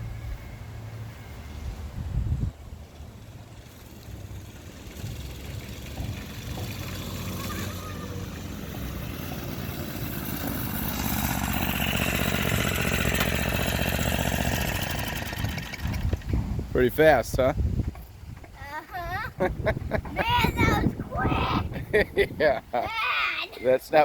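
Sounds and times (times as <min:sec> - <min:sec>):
small motorcycle engine running: 0:03.2 - 0:16.4.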